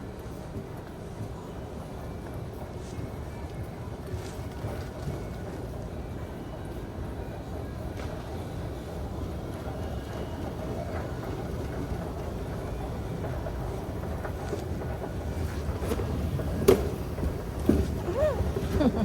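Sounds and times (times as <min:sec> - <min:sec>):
street traffic rumble: 0:03.8 - 0:19.0.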